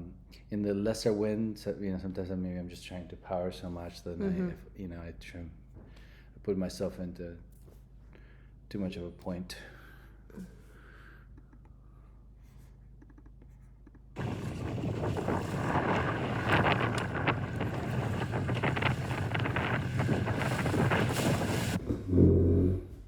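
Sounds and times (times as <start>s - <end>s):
water rushing and splashing: 14.2s - 21.8s
wind buffeting microphone: 14.2s - 23.0s.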